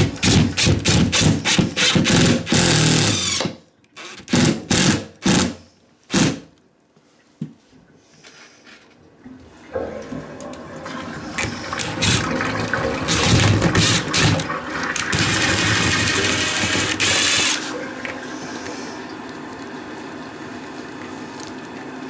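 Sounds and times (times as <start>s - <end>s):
toilet flushing: 0.0s - 3.0s, 9.1s - 22.0s.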